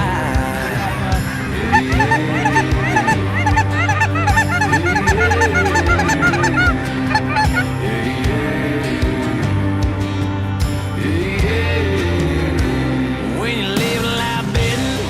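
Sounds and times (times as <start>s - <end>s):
geese honking: 0.4s - 7.8s
music bed: 0.4s - 8.5s.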